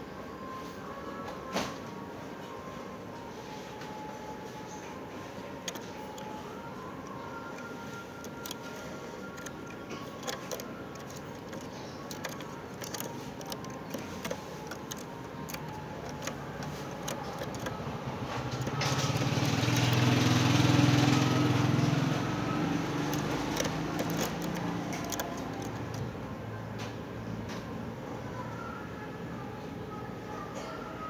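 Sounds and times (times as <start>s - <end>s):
faint clicks: 5.4s - 26.2s
vehicle engine passing: 10.2s - 26.1s.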